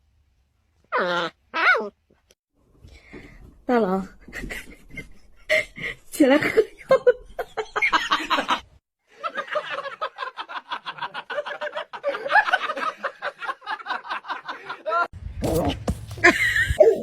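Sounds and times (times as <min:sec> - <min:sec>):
person laughing hard: 0:16.2 - 0:17.0.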